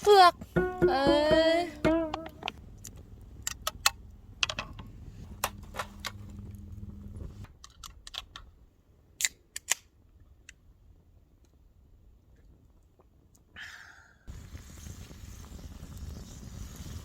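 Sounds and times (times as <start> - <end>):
campfire crackling: 0.0 - 8.2, 14.3 - 17.0
low hum: 0.4 - 7.5.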